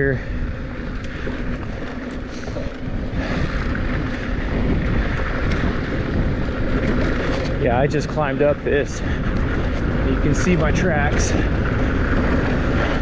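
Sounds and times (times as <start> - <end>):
wind buffeting microphone: 0.0 - 13.0
bike tyres rushing on dirt: 0.1 - 13.0
bike rattle: 0.9 - 10.0.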